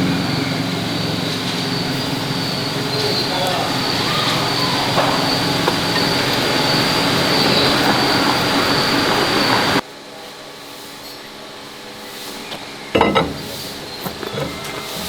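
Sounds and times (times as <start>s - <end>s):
farm vehicle engine running: 0.0s - 9.8s.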